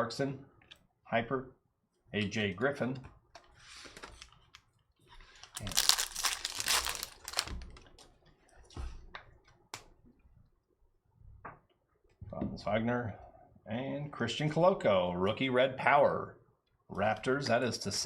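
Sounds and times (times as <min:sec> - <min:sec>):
wrapper crinkling: 0:03.9 - 0:08.1
plastic foil wrapper ripping: 0:05.3 - 0:07.9.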